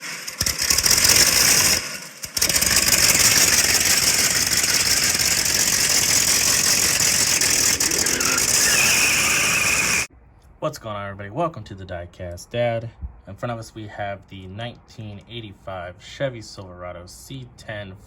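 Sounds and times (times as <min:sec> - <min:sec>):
loud engine running: 0:00.0 - 0:10.1.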